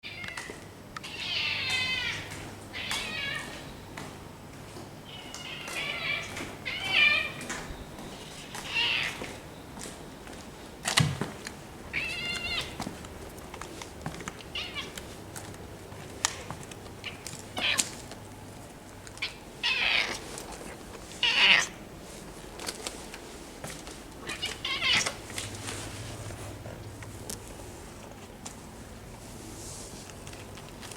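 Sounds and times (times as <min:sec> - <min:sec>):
cats yowling: 0:00.0 - 0:03.8, 0:05.0 - 0:09.4, 0:11.8 - 0:13.0, 0:14.3 - 0:15.2, 0:16.2 - 0:18.2, 0:19.1 - 0:21.8, 0:24.2 - 0:25.5.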